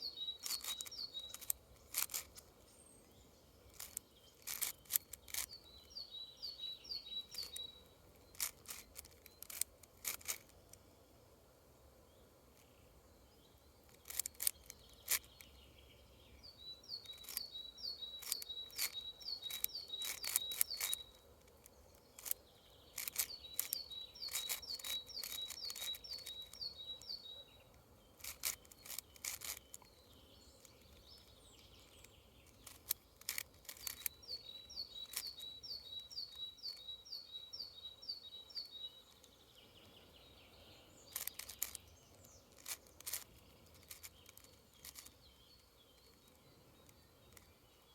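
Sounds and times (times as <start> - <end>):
bird calling: 0.0 - 2.9, 16.8 - 21.2, 22.2 - 27.5, 31.9 - 39.1
puzzle cube plastic clicks: 0.4 - 2.5, 3.7 - 5.6, 7.3 - 7.6, 8.2 - 10.8, 13.9 - 15.3, 17.0 - 17.5, 18.2 - 27.2, 28.2 - 29.9, 31.9 - 35.5, 41.1 - 45.2.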